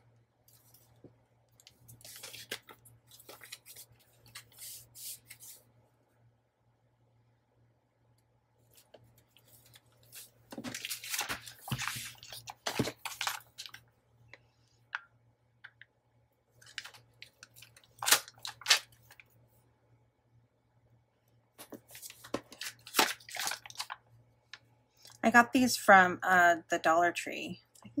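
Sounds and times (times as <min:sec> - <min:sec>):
craft materials rustling and crinkling: 0:00.4 - 0:05.6, 0:08.7 - 0:13.8, 0:16.6 - 0:19.3, 0:21.6 - 0:24.0.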